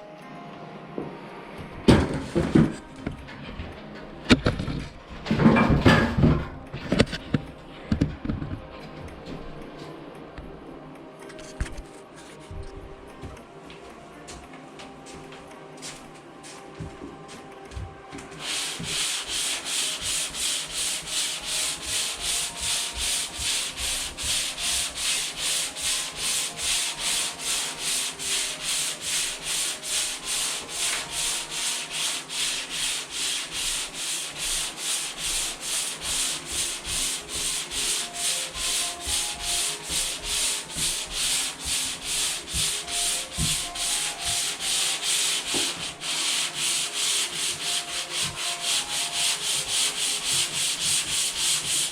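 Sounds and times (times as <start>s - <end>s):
sandpaper scraping on wall: 1.9s - 2.8s, 18.4s - 51.9s.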